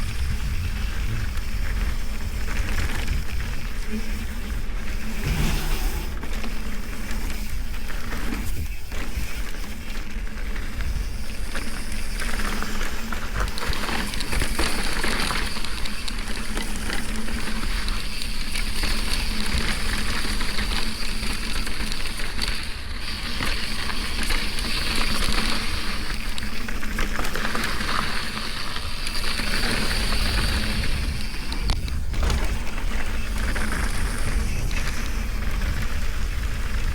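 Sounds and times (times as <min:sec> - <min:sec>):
bike rattling: 0:00.0 - 0:36.9
tyres rolling over dirt and rock: 0:00.4 - 0:36.9
wind on microphone: 0:05.0 - 0:06.9.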